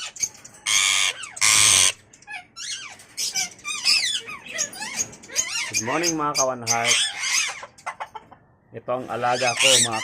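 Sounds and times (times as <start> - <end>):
parakeets screeching: 0.0 - 8.2, 9.0 - 10.0.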